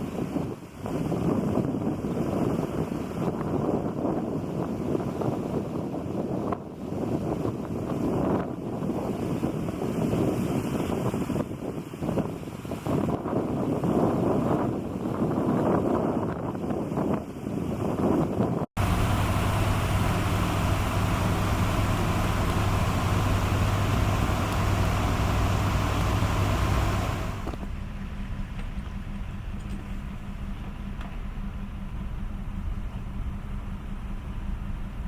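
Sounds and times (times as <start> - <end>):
road noise: 18.8 - 35.0
vehicle engine humming: 18.8 - 35.0.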